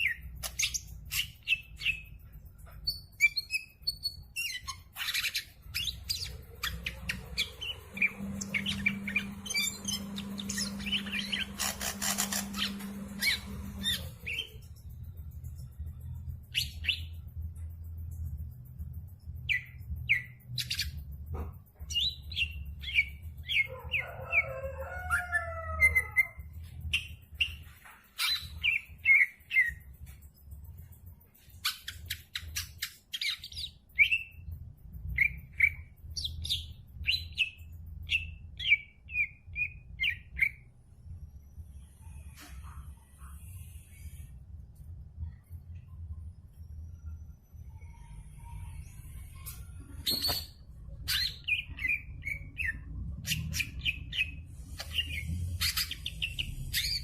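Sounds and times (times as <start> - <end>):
bird chirping and warbling: 0.0 - 17.4, 19.4 - 21.1, 21.8 - 29.9, 46.5 - 57.0
low steady hum: 0.0 - 57.0.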